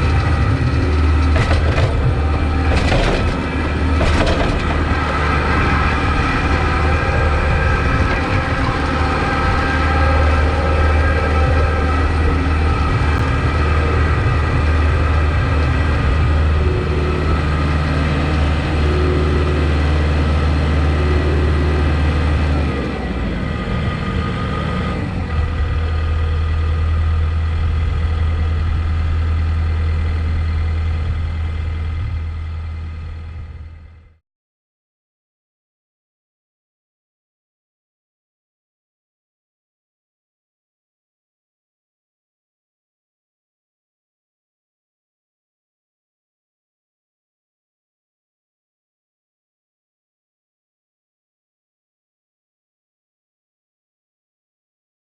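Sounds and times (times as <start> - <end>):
tractor diesel engine running: 0.0 - 34.2.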